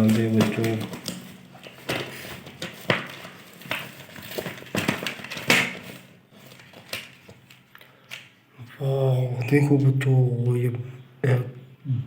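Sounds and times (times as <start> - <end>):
plastic toy packaging clicking: 0.0 - 8.3.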